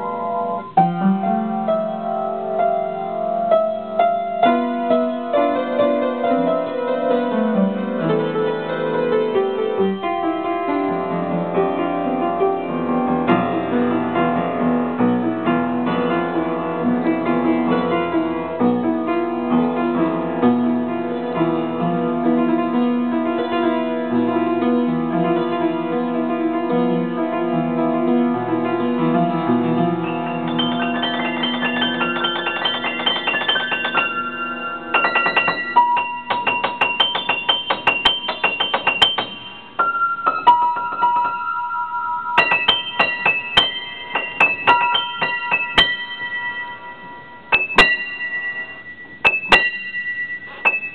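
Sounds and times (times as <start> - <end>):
solo piano playing: 0.0 - 50.9.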